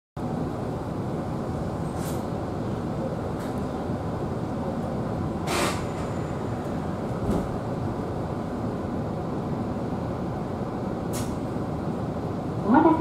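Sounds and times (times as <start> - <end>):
train wheels rumbling on rails: 0.2 - 13.0.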